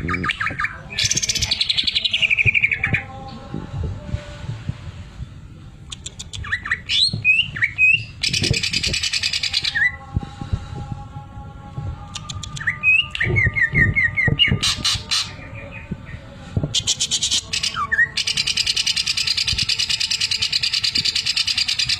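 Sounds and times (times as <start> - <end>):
bird singing clicks and whistles: 12.1 - 13.3.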